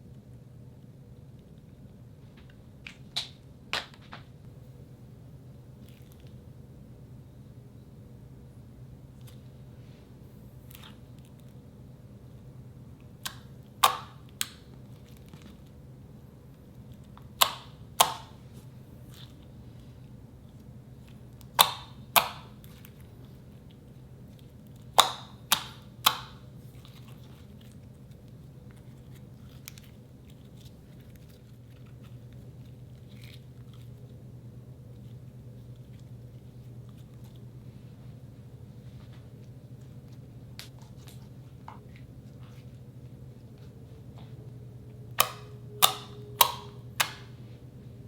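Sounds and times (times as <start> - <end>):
low steady hum: 0.0 - 48.0
slime popping: 24.7 - 34.2.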